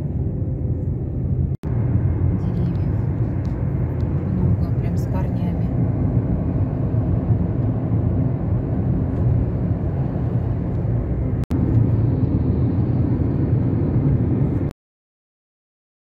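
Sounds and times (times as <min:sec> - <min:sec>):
low rumbling noise: 0:00.0 - 0:14.7.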